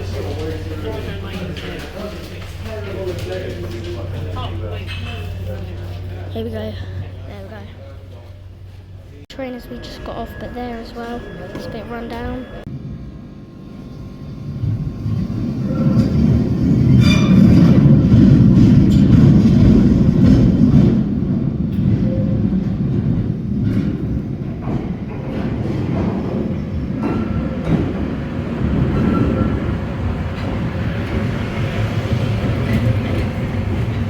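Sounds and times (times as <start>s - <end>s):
train wheel clacks: 0.0s - 6.4s, 14.5s - 34.0s
underground train rumble: 0.0s - 34.0s.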